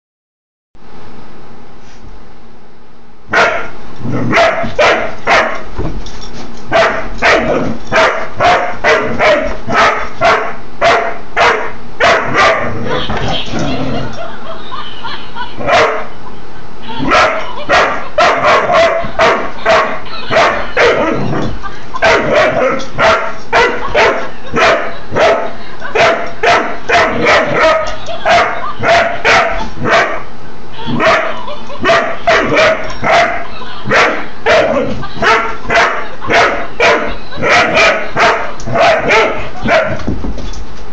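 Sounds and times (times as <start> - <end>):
puppy barking sharply: 3.3 - 5.6, 6.7 - 12.7, 17.1 - 21.2, 22.0 - 25.4, 26.0 - 30.2, 33.9 - 40.0.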